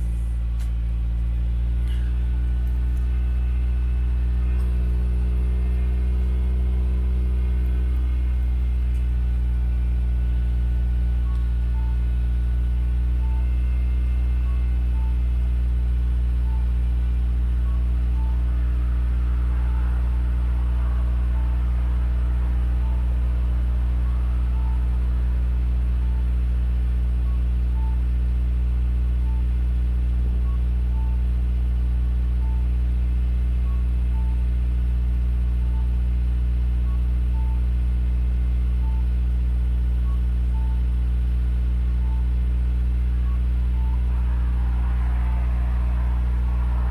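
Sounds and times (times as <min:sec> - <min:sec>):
car engine idling: 0:00.0 - 0:46.9
faint light ticking: 0:01.8 - 0:03.3, 0:11.2 - 0:12.0.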